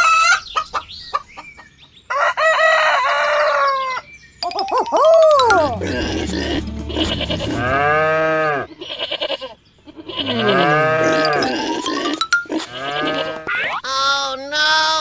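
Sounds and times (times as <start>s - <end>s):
background music: 4.4s - 8.7s
animal bleat sound effect: 4.8s - 8.2s.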